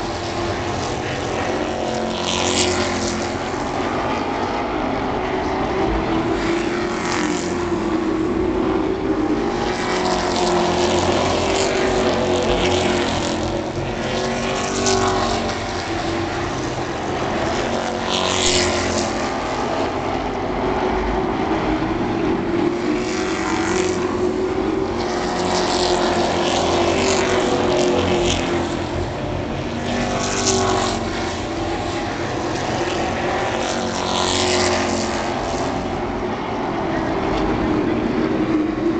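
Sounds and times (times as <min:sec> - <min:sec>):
racing truck engines passing: 0:00.0 - 0:38.9.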